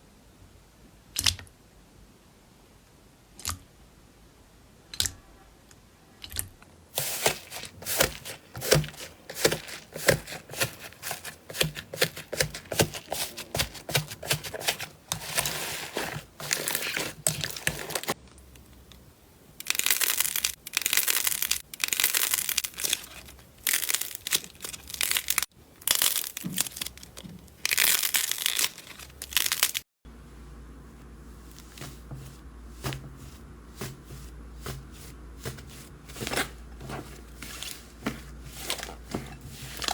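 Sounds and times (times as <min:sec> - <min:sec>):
slime crackling: 0:07.0 - 0:18.2.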